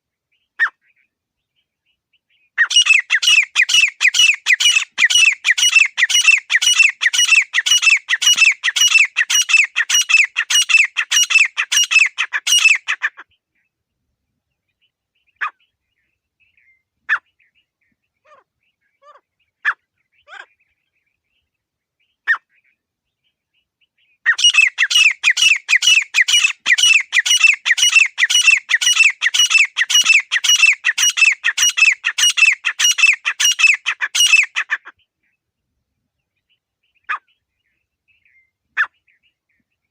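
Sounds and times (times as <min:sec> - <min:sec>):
francolin calling rapidly: 0:02.5 - 0:13.2, 0:24.3 - 0:35.0
single short bird calls: 0:37.0 - 0:37.4.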